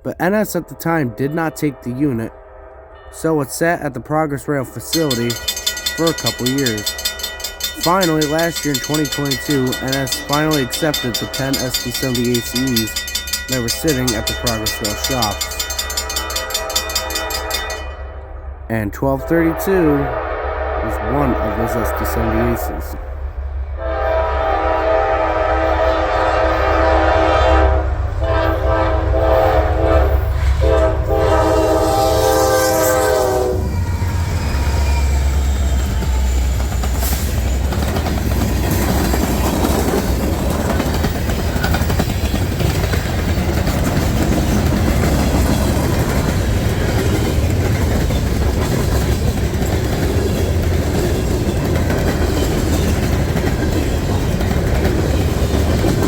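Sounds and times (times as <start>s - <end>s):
locomotive air horn blasts: 0.4s - 3.4s, 19.2s - 22.9s, 23.8s - 34.4s
train wheel and rail noise: 2.3s - 56.0s
locomotive engine rumble: 4.7s - 19.4s, 21.2s - 56.0s.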